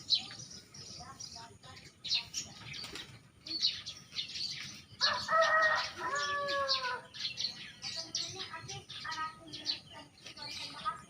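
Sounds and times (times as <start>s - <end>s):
small birds chirping: 0.0s - 11.0s
rooster crowing: 5.0s - 7.0s.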